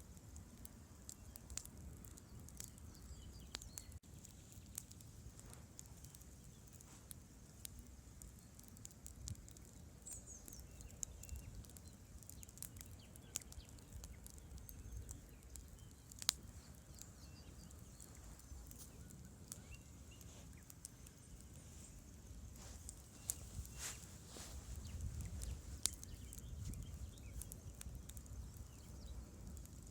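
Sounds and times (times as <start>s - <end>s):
campfire crackling: 0.0s - 29.9s
sharp pops of burning wood: 0.0s - 29.9s
steady low rumble: 21.3s - 29.6s.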